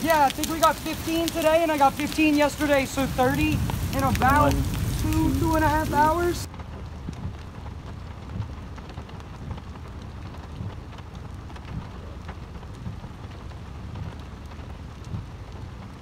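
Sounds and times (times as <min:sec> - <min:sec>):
rain on wet pavement and grass: 0:00.0 - 0:16.0
raindrops ticking close by: 0:00.0 - 0:16.0
steady low rumble: 0:00.0 - 0:16.0.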